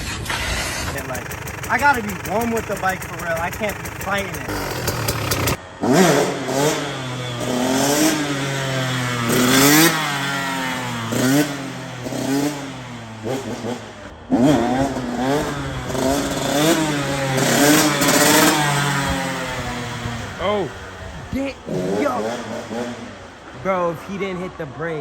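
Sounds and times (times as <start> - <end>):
dirt bike engine revving: 0.8 - 23.6.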